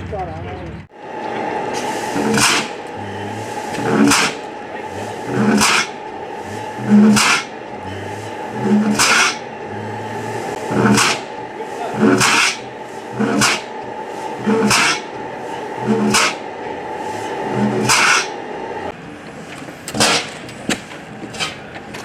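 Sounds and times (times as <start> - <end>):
steady mechanical hum: 0.0 - 22.0
engine exhaust pops: 2.2 - 3.0, 6.8 - 7.5, 10.7 - 11.3, 13.2 - 13.7, 19.6 - 22.0.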